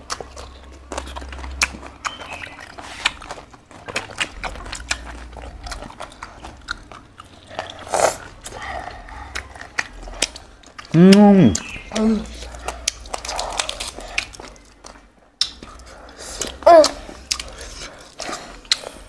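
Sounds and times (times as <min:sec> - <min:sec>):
people chewing food: 0:00.0 - 0:19.0
wet mouth clicks and smacks: 0:09.3 - 0:19.0.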